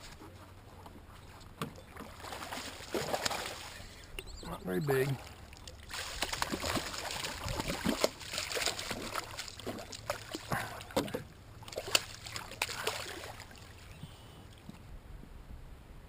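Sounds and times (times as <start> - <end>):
water splashing around boat: 0.0 - 14.8.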